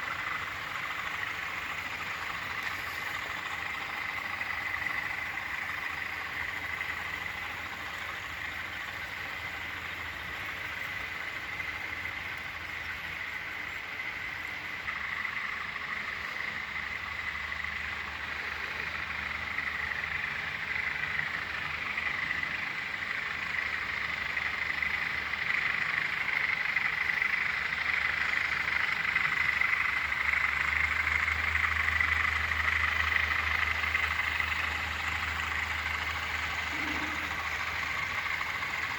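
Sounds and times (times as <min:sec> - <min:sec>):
diesel locomotive engines rumbling: 0:00.0 - 0:38.9
raspy high whine: 0:36.7 - 0:37.5.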